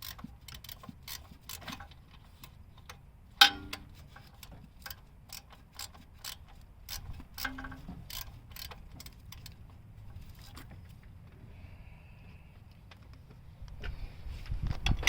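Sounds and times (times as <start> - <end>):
hand ratchet clicking: 0.0 - 2.0, 2.8 - 9.6
sharp metal clank: 3.4 - 3.9.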